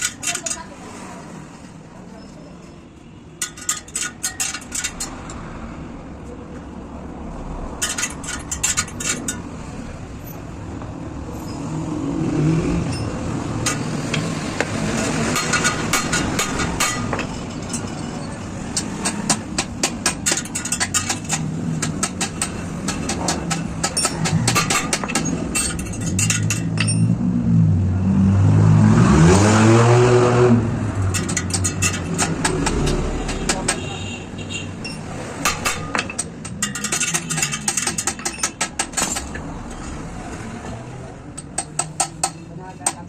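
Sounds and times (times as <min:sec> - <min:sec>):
motor vehicle passing: 0:07.1 - 0:19.6, 0:21.0 - 0:33.9
metallic clicks and taps: 0:18.7 - 0:27.1, 0:31.0 - 0:33.8, 0:34.8 - 0:39.8, 0:41.3 - 0:43.0.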